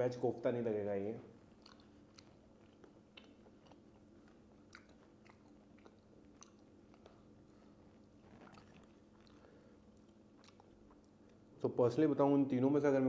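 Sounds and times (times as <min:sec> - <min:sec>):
faint low hum: 0:00.0 - 0:13.0
person chewing: 0:01.4 - 0:11.5.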